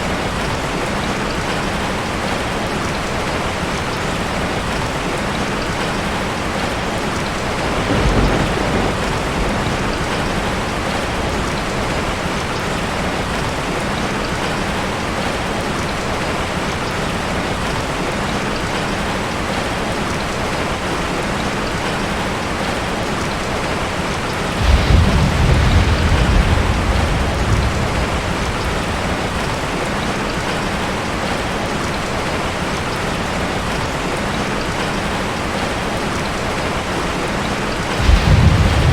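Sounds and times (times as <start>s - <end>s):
steady rain falling: 0.0s - 38.9s
low rolls of thunder: 7.3s - 13.6s, 23.7s - 31.4s, 37.4s - 38.9s.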